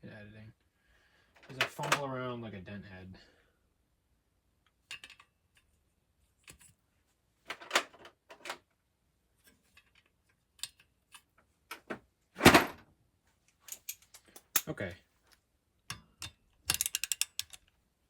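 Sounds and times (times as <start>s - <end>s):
tools clattering: 4.9s - 5.3s, 10.6s - 12.8s, 13.6s - 14.7s, 15.9s - 17.7s
metal tools clinking: 13.6s - 14.7s.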